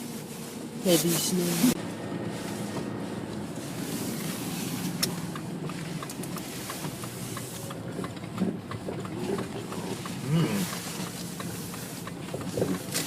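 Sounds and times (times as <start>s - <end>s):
car road and engine noise: 0.0s - 13.0s
faint regular ticking: 4.8s - 13.0s.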